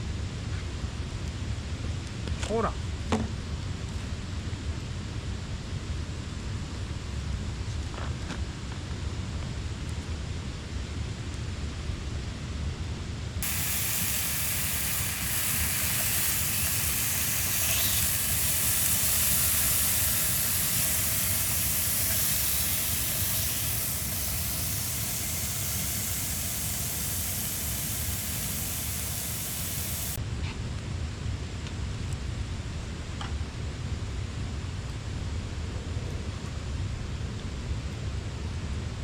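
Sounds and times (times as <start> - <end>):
low background rumble: 13.2 - 30.2
steady gas hiss: 13.4 - 30.2.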